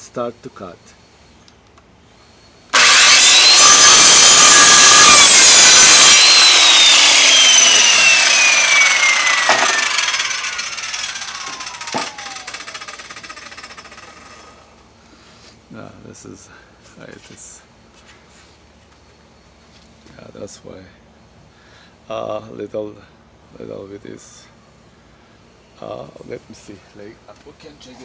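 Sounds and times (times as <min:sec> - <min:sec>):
circular saw cutting wood: 0:02.7 - 0:14.7
saw blade spinning down: 0:02.8 - 0:14.7.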